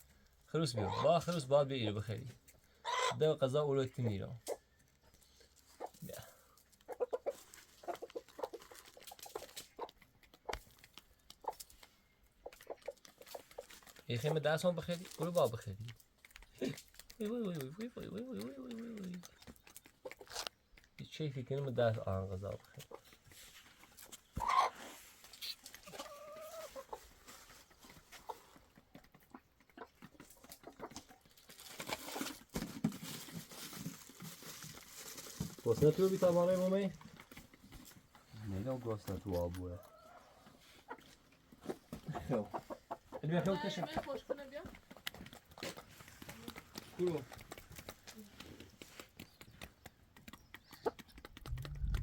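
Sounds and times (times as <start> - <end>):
chickens clucking: 0.7 - 14.4, 15.9 - 32.4, 35.7 - 52.0
chicken drawn-out call: 2.8 - 3.2, 24.4 - 27.0.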